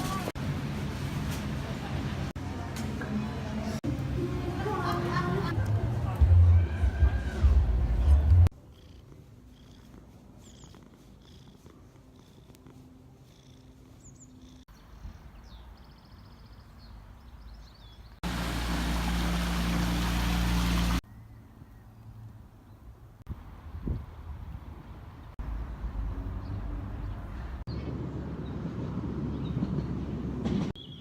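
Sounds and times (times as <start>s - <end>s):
faint bird chirps: 8.7s - 11.5s.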